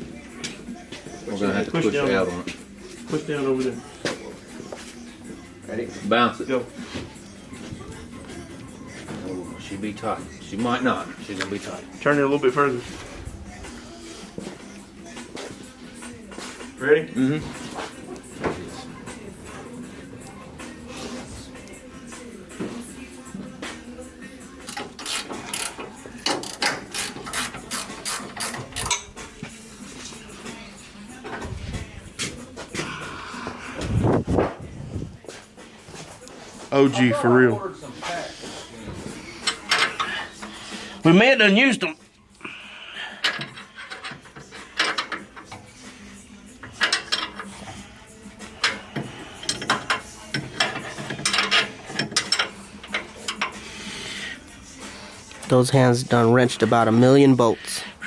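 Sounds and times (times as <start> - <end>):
ratchet wrench clicking: 24.7 - 29.1, 46.6 - 47.5, 48.6 - 53.6
metal tools clinking on bolts: 24.7 - 29.2, 39.3 - 40.6, 43.1 - 45.8, 46.6 - 47.8, 48.4 - 53.6.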